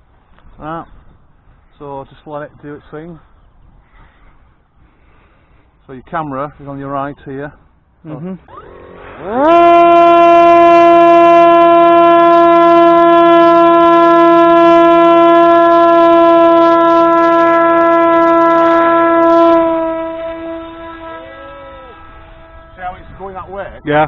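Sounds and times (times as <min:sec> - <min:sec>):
drone motor whining: 0:08.5 - 0:12.4, 0:15.7 - 0:23.4.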